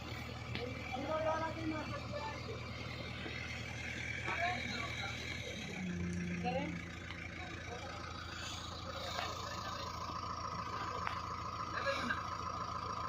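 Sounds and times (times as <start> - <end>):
heavy machine engine idling: 0.0 - 13.0.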